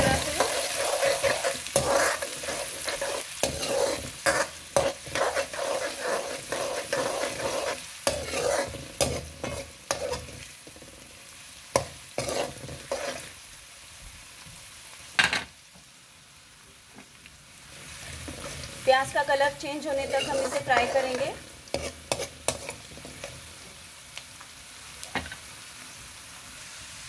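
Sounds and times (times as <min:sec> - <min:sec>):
onions sizzling in hot oil: 0:00.0 - 0:27.0
utensil scraping and knocking pan: 0:19.9 - 0:23.4.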